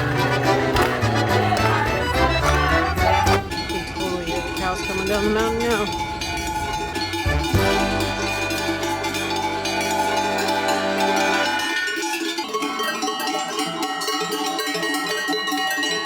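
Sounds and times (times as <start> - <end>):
cowbells clanging: 0.0 - 16.0
held low musical note: 7.3 - 11.6.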